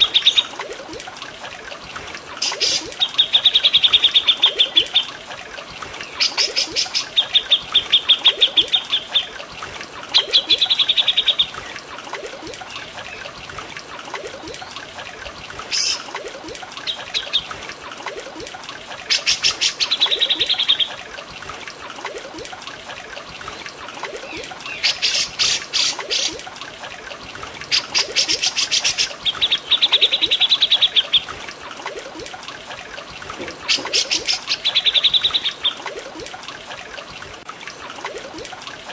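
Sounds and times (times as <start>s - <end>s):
water trickling: 0.0s - 38.9s
birds singing trilled phrases: 6.0s - 9.4s, 10.1s - 11.8s, 15.6s - 16.1s, 16.8s - 17.6s, 24.0s - 26.4s.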